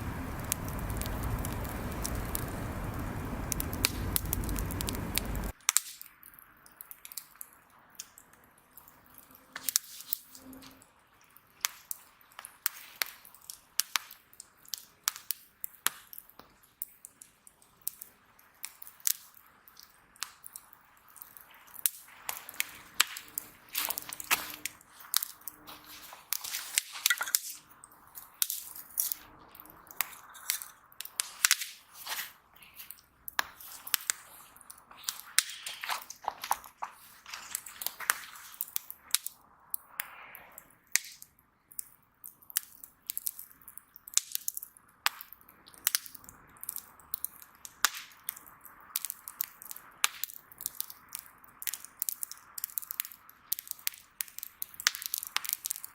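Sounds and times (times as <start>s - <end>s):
hiss of burning wood: 0.0s - 5.6s, 20.5s - 39.3s
wood fire crackling: 0.0s - 10.2s, 11.1s - 55.9s.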